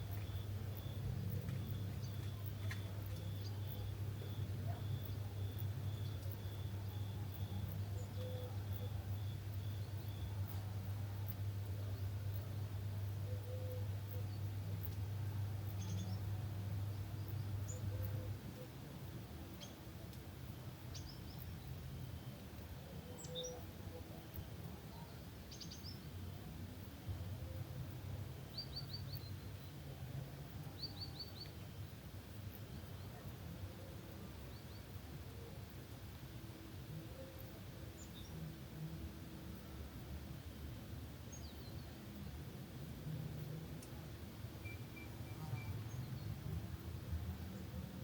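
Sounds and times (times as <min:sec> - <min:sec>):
small birds chirping: 0:00.0 - 0:18.7, 0:19.4 - 0:26.2, 0:30.6 - 0:36.2.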